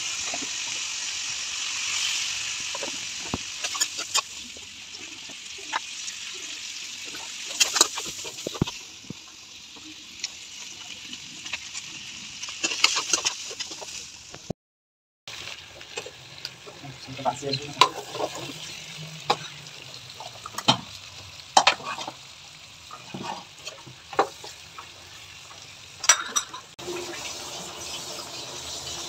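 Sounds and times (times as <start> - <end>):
food sizzling in a pan: 0.0 - 14.5, 15.3 - 29.0
spatula scraping a pot: 22.9 - 24.6.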